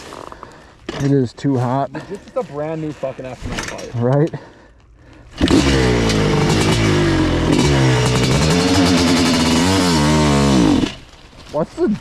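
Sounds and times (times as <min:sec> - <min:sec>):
two-stroke motorcycle engine revving: 0:05.4 - 0:11.0.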